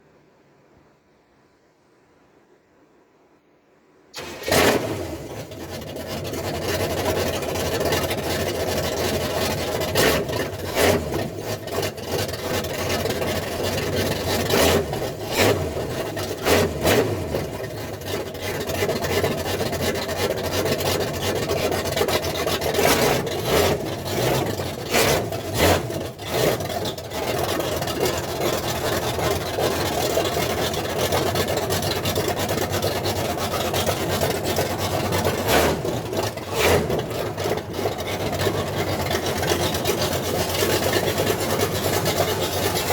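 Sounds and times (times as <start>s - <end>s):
car engine idling: 4.2s - 42.9s.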